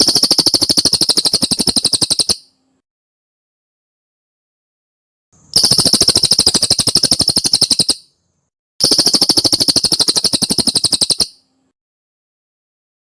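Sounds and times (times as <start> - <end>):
bird rattling trills: 0.0 - 2.5, 5.5 - 8.1, 8.8 - 11.4.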